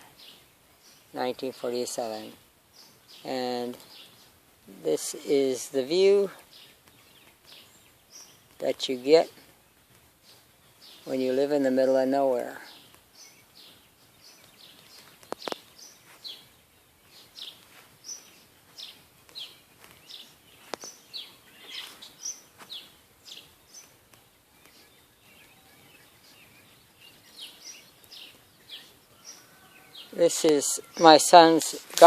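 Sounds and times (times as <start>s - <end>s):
small birds chirping: 0.0s - 32.0s
sharp clicks: 15.2s - 15.7s.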